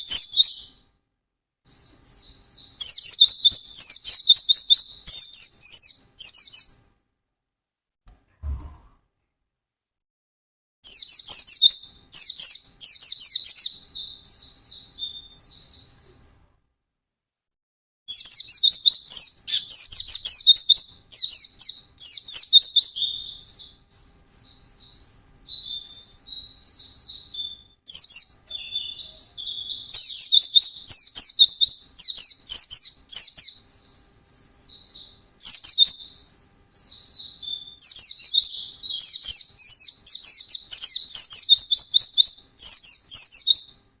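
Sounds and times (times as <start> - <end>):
bird singing chattering song: 0.0 - 0.8, 1.7 - 6.8, 10.8 - 16.4, 18.1 - 43.9.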